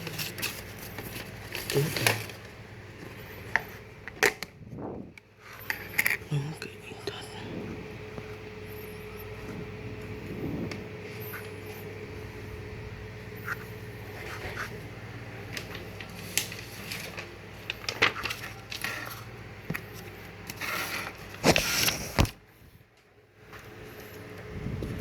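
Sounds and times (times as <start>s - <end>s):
packaging clicks and scrapes: 0.0s - 4.5s, 15.5s - 22.4s
crackling packaging rustle: 0.0s - 4.6s, 13.4s - 22.4s
steady low hum: 0.0s - 25.0s.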